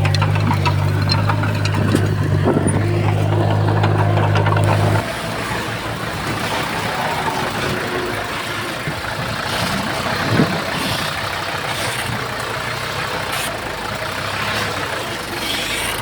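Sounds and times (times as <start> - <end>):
metal clanks: 0.0 - 5.3
heavy diesel machinery engine hum: 0.0 - 16.0.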